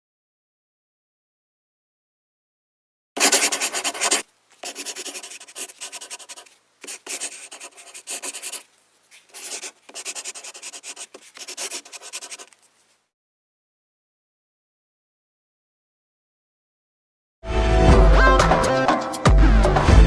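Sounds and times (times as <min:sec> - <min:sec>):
pen scribbling on paper: 0:03.2 - 0:12.7.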